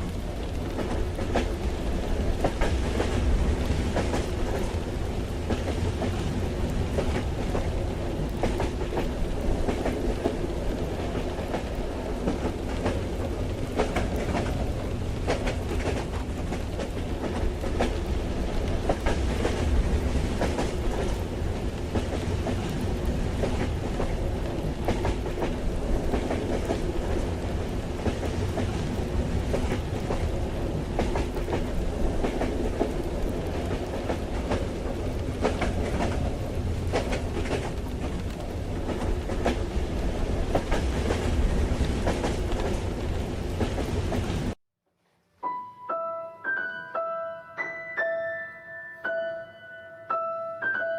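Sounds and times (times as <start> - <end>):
train carriage rumble: 0.0 - 44.6
piano single notes: 45.4 - 50.9.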